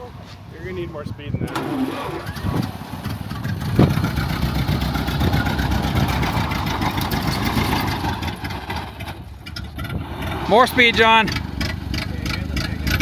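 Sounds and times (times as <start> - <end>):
car engine labouring: 0.0 - 13.0.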